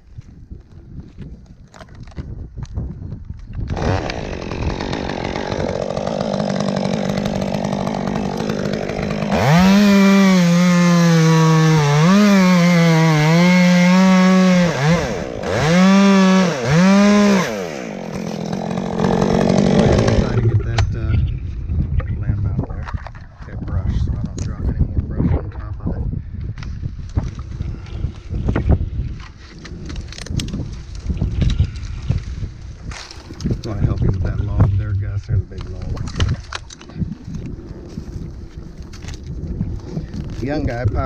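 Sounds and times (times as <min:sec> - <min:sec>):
chainsaw revving: 0:03.7 - 0:20.8.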